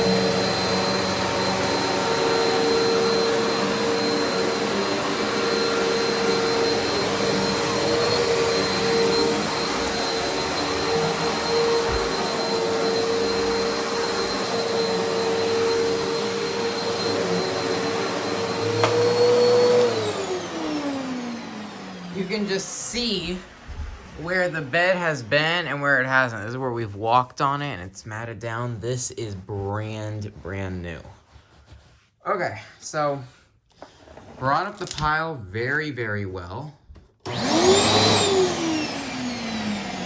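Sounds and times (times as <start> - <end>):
vacuum cleaner running on carpet: 0.0 - 25.8, 37.3 - 40.0.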